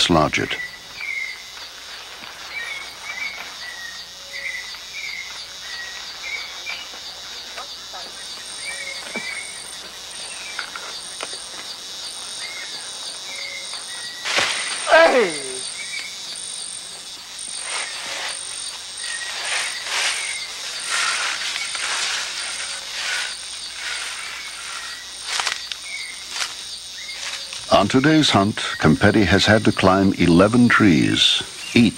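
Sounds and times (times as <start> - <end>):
insect chorus drone: 0.0 - 31.9
crackling rustling noises: 1.0 - 14.9, 15.9 - 27.8
bird chirps: 2.4 - 11.2, 12.0 - 14.2
loud falling cry: 14.8 - 15.6.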